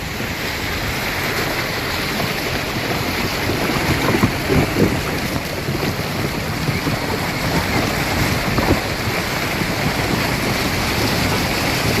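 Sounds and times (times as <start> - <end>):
heavy rain: 0.0 - 12.0
wind: 0.0 - 12.0
wind rumbling on microphone: 0.0 - 12.0.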